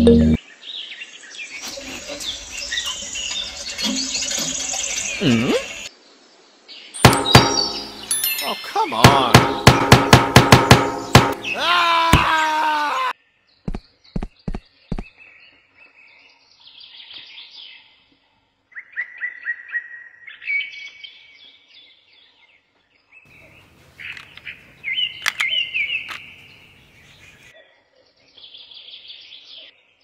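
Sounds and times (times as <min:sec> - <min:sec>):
small birds chirping: 0:00.5 - 0:10.0, 0:10.7 - 0:18.2, 0:20.8 - 0:30.0
low steady hiss: 0:05.0 - 0:07.2
sharp knocks: 0:07.0 - 0:08.2, 0:09.0 - 0:12.3.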